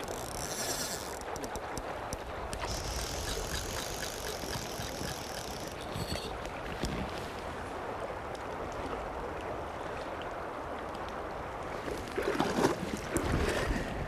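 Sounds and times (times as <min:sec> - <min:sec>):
fishing reel drag ticking: 0:00.0 - 0:01.6, 0:02.5 - 0:06.4
river water rushing: 0:00.0 - 0:13.9.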